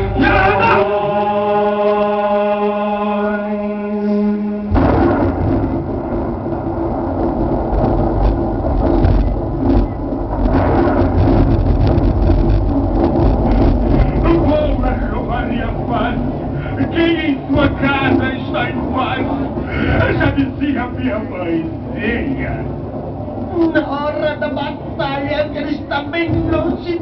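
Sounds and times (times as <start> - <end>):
held musical chord with drone: 0.0 - 4.8
loud steady rumbling: 0.0 - 27.0.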